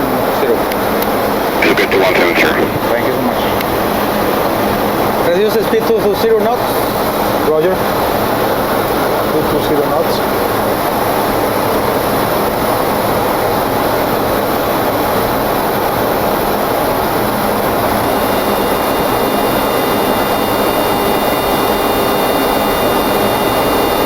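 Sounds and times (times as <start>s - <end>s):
jet engines humming: 1.6s - 4.4s.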